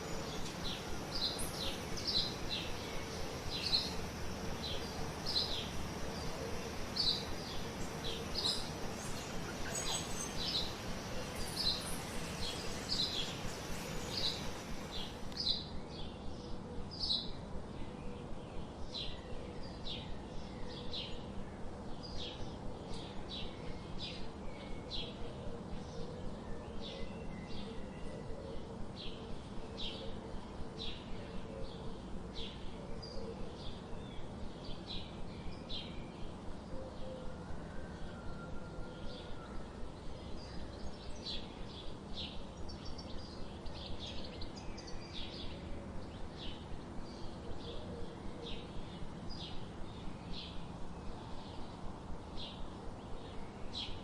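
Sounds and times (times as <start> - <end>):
bird chirping: 0.0 - 16.1
background hiss: 0.0 - 38.3, 39.0 - 54.0.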